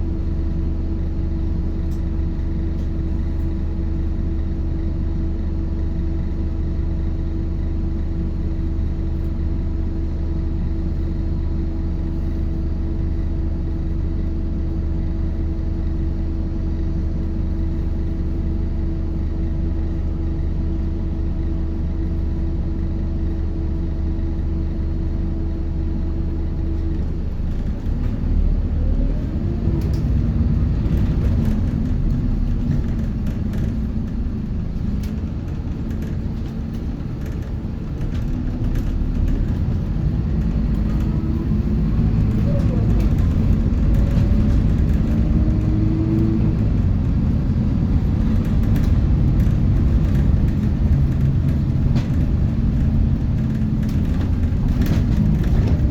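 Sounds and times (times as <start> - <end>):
bus diesel engine hum: 0.0 - 55.9
rising engine whine: 26.2 - 55.9.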